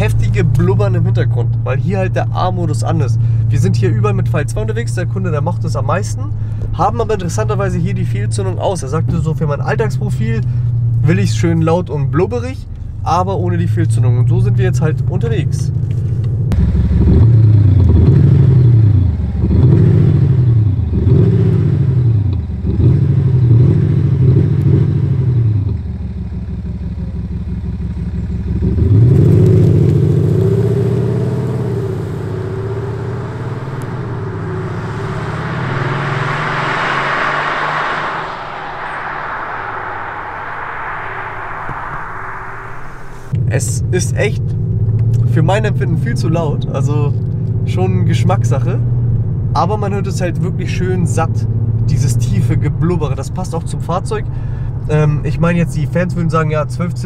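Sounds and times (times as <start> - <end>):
car engine revving: 0.0 - 55.6
rising hiss of car pulling away: 29.4 - 43.3.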